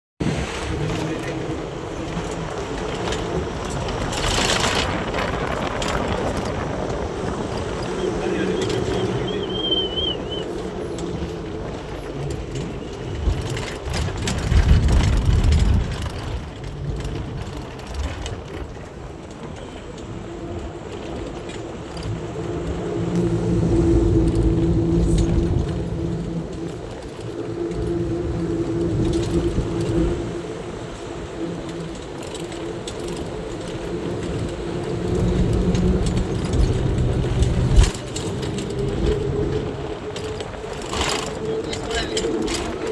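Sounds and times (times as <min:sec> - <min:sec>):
road vehicle rumble: 0:00.2 - 0:42.9
clicks and rattles: 0:10.9 - 0:42.9.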